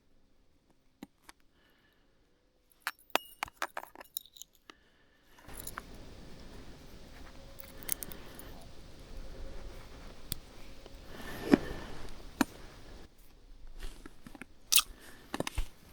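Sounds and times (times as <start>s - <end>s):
hard objects clinking: 2.8s - 4.7s, 5.5s - 6.2s, 7.3s - 8.8s.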